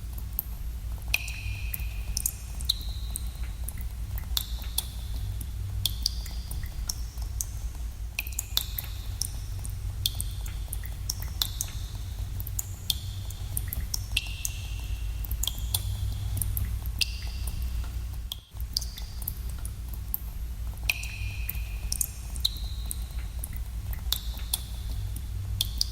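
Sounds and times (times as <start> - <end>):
steady low rumble: 0.0 - 25.9
water drops plinking into pools: 1.1 - 4.9, 8.2 - 18.0, 20.9 - 24.7.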